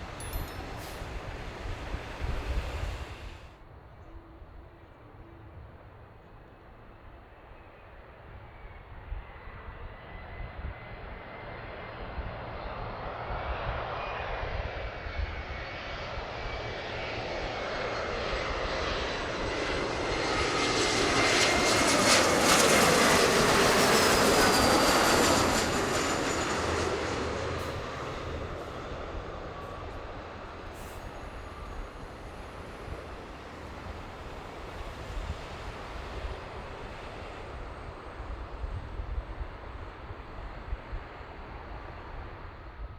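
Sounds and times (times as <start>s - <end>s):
engine whine sliding down in pitch: 0.0s - 3.5s
jet airliner engine noise: 0.0s - 3.5s, 6.8s - 42.9s.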